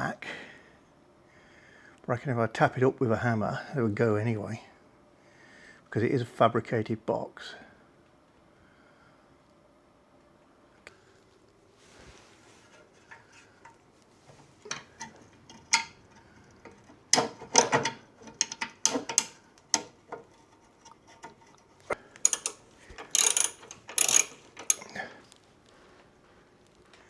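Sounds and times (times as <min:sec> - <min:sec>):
hand tools clanking on metal: 0:14.7 - 0:25.0.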